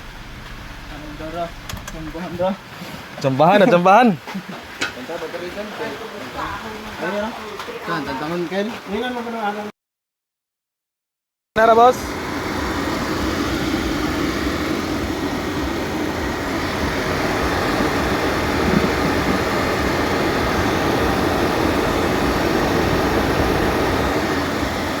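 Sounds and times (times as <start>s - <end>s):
car engine running steadily: 0.0s - 3.6s, 11.6s - 25.0s.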